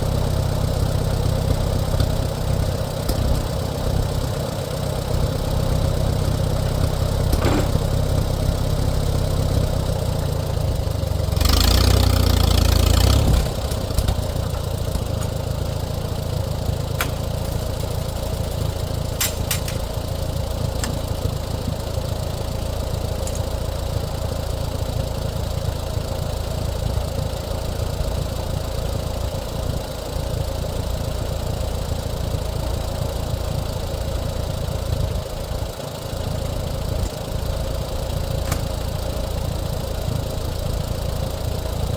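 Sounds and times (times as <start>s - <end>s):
tractor engine idling: 0.0s - 41.9s.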